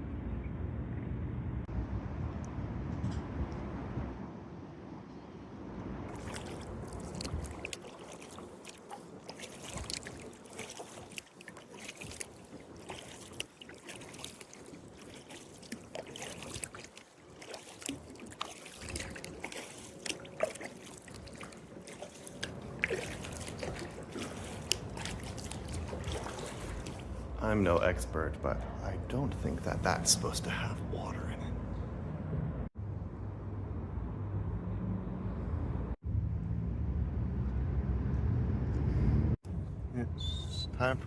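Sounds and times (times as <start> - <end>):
water dripping off paddle: 6.1 - 27.3
paddle splashing in water: 6.1 - 27.7.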